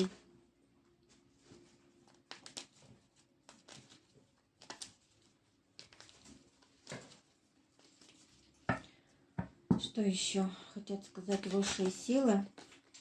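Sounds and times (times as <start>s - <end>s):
cards rustling and tapping: 2.0s - 9.5s.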